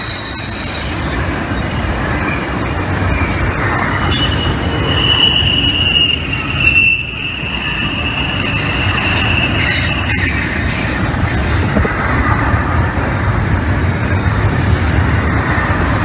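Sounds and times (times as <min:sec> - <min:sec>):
wheel squeal: 0:00.0 - 0:11.0
freight train wheels rumbling: 0:00.0 - 0:16.0.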